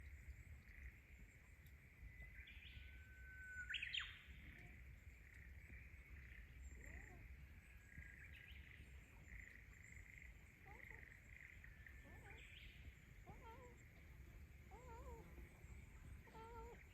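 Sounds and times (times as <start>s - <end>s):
bird-like call: 2.3s - 4.7s, 6.7s - 14.0s.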